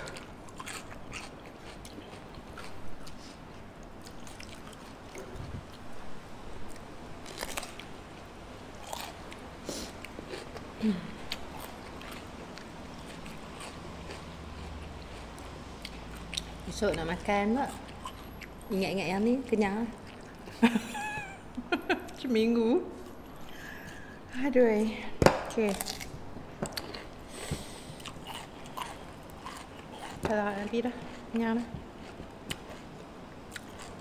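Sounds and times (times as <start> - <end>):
crunching raw cucumber: 25.4 - 26.1.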